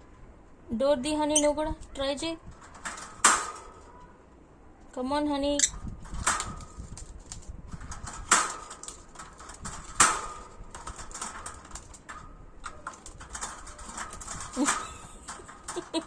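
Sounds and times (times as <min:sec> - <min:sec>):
knocks on ringing wire cage: 0:02.7 - 0:03.8, 0:07.9 - 0:16.0.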